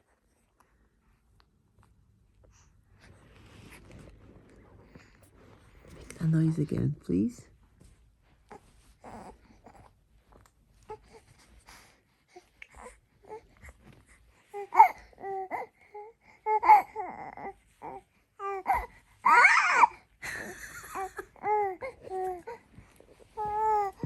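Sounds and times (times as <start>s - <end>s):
baby squealing and babbling: 18.7s - 19.9s.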